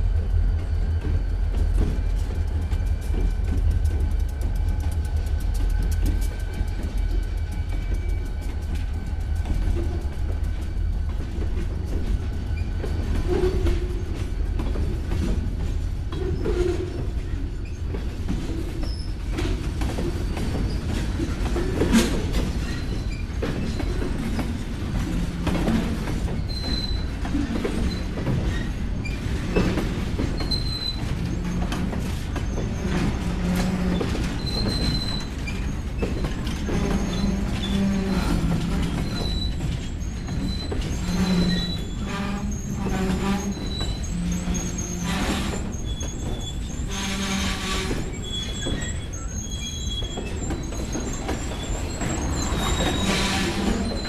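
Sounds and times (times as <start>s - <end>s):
freight train rumbling over rails: 0.0s - 54.0s
locomotive tones: 0.0s - 54.0s
high-pitched wheel squeals: 36.6s - 54.0s.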